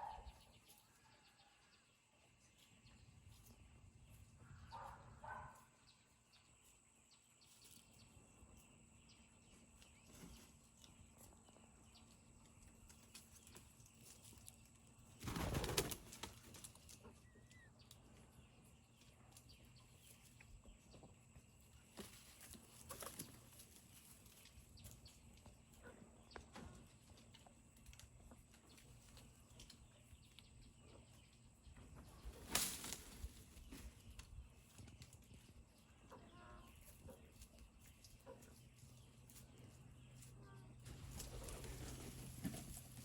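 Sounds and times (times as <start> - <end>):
wings flapping: 15.2 - 16.8, 32.4 - 33.3.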